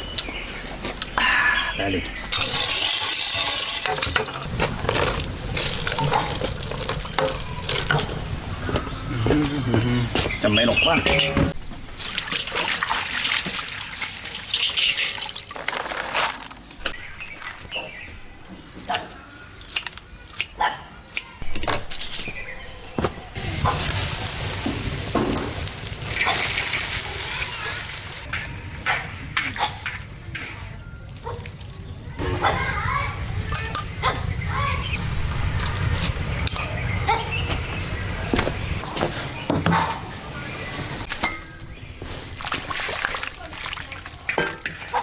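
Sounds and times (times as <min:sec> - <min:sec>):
food sizzling in a wok: 0:23.4 - 0:28.2.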